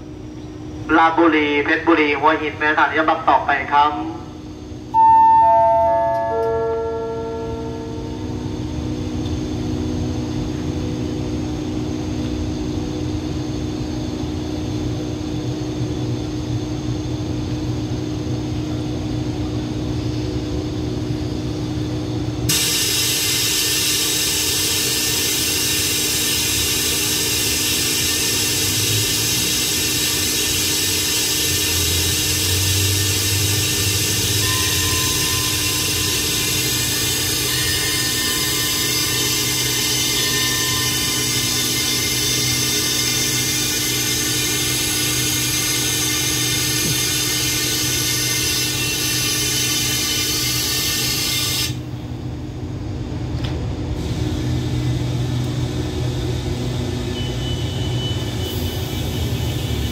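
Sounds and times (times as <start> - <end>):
train engines humming: 0.0 - 59.9
steady tones: 4.9 - 8.9
loud steady hiss: 22.5 - 48.1.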